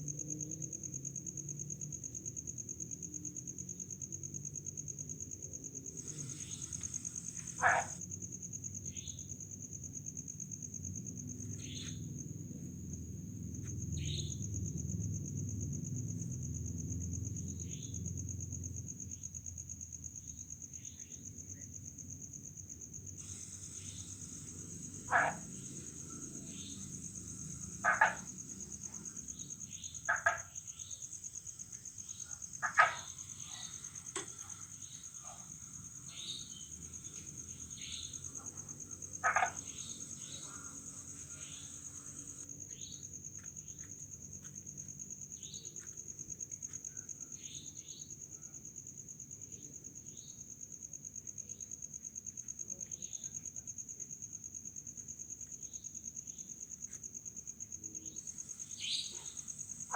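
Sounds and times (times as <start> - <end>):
crickets trilling: 0.0 - 59.9
frogs croaking: 5.4 - 8.1, 13.6 - 15.5, 16.1 - 19.6, 22.9 - 46.0, 57.9 - 59.9
faint frog chirps: 5.8 - 8.1, 11.4 - 12.2, 23.2 - 43.9, 57.8 - 59.9.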